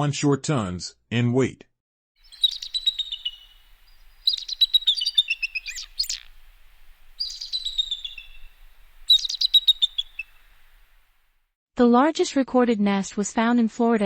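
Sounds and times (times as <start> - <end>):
eagle chattering call: 2.2 - 11.1.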